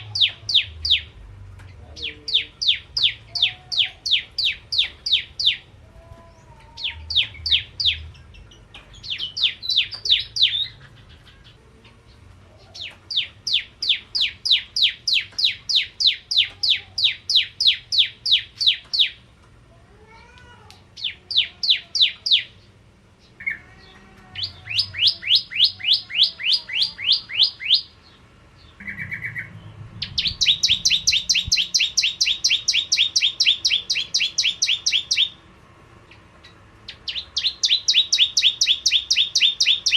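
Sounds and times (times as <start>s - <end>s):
bird singing high chirps: 0.0s - 11.6s, 12.7s - 19.2s, 21.0s - 35.4s, 36.4s - 39.9s
faint lower bird chirps: 23.4s - 35.4s, 36.9s - 39.9s.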